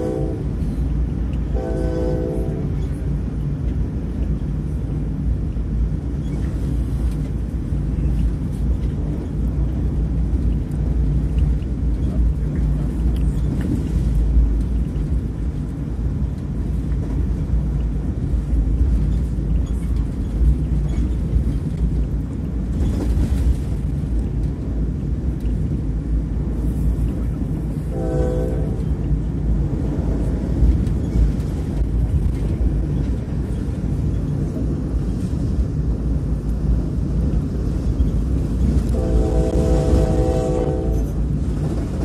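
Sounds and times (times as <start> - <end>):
train horn: 0.0 - 0.6, 1.5 - 2.8, 27.9 - 29.0, 38.9 - 41.2
train low rumble inside carriage: 0.0 - 42.0.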